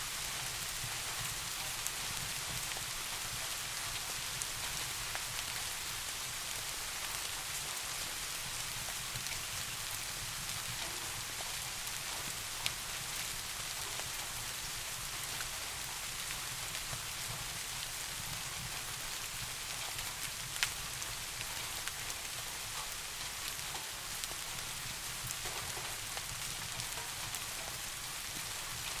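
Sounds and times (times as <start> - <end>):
steady rain hiss: 0.0 - 29.0
raindrops ticking: 8.2 - 29.0.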